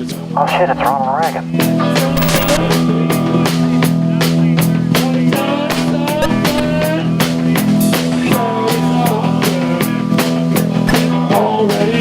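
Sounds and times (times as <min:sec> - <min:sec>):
bass and guitar notes: 0:01.8 - 0:07.5
rock drum kit beat: 0:02.0 - 0:12.0.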